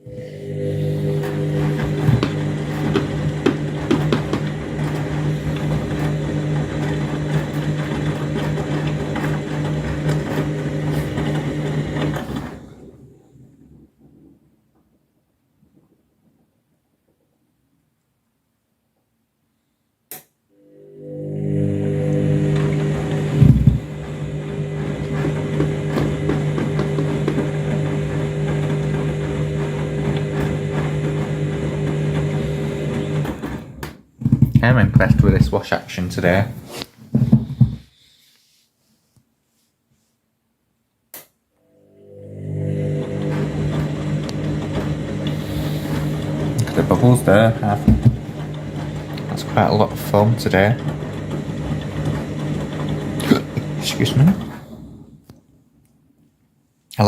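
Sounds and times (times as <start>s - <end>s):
laundry load churning: 0.0s - 13.9s, 21.4s - 33.8s, 34.6s - 37.9s, 42.3s - 55.2s
washing machine motor humming: 0.0s - 14.1s, 20.6s - 37.9s, 41.6s - 55.6s.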